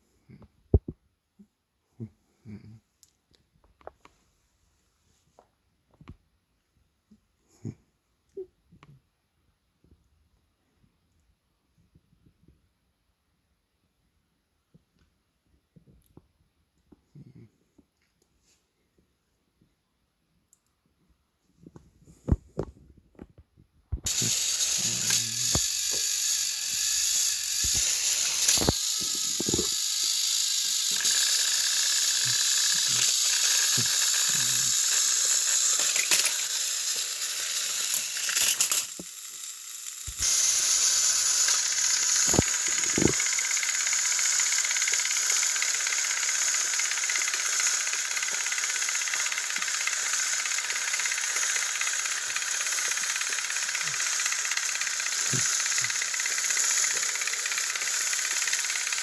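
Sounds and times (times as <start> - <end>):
toy train motors rattling: 24.0 - 59.0
toy switch clicks: 24.1 - 39.1.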